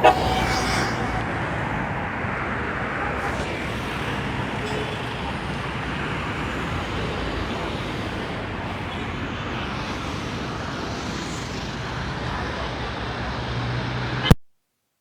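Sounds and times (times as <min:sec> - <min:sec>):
road traffic noise: 0:00.0 - 0:14.4.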